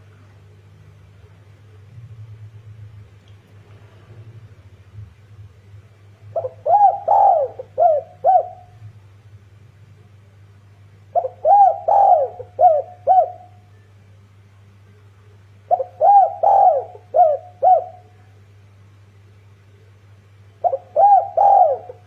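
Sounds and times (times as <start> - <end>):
dove cooing: 6.2 - 9.0, 11.1 - 13.7, 15.7 - 18.2, 20.6 - 22.0.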